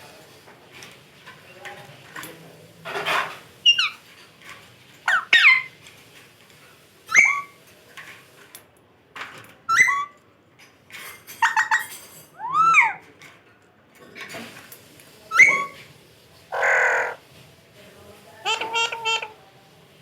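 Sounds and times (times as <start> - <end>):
parrot whistled squawks: 7.1 - 7.5, 9.7 - 10.1, 12.4 - 13.0, 15.3 - 15.8.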